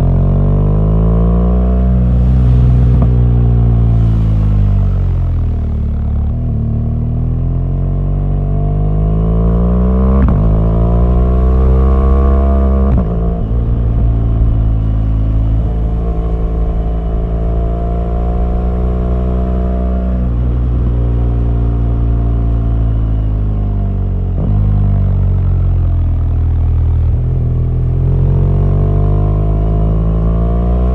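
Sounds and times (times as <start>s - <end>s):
motorcycle engine revving: 0.0s - 23.7s.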